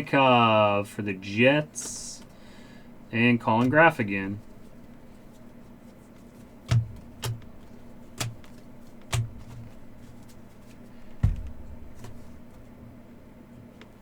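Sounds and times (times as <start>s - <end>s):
steady low hum: 0.0s - 14.0s
cards clicking and tapping: 3.4s - 12.7s.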